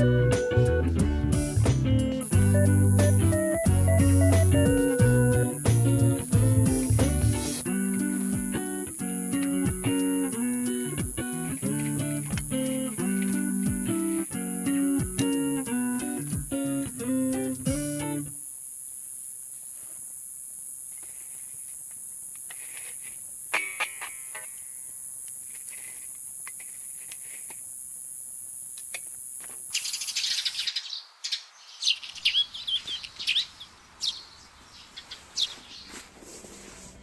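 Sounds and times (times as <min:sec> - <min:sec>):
birds chirping: 0:00.0 - 0:18.2, 0:29.7 - 0:36.1
steady high-pitched hiss: 0:00.0 - 0:37.0.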